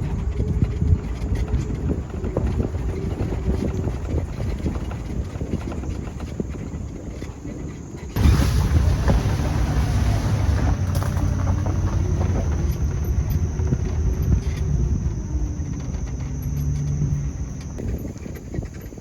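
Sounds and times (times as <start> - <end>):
vehicle engine humming: 8.2 - 18.0.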